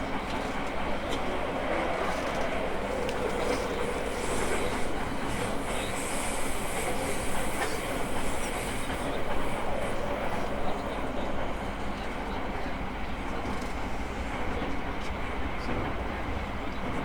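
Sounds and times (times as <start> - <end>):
rail-joint clacks: 0.0 - 17.0
train wheels rumbling on rail: 0.0 - 17.0.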